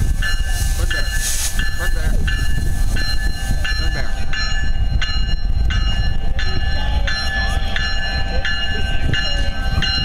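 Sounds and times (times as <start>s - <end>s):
bell ringing steadily: 0.0s - 10.0s
diesel locomotive rumble: 0.0s - 10.0s.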